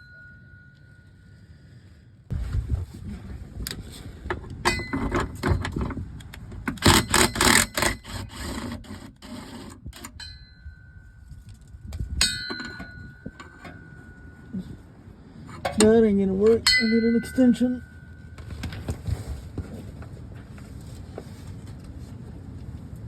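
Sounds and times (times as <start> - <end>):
sharp metal clangs: 4.6 - 5.8, 10.0 - 11.2, 12.2 - 14.7, 15.5 - 18.5
metal tools clinking: 4.6 - 5.9, 10.0 - 14.8, 15.4 - 18.9.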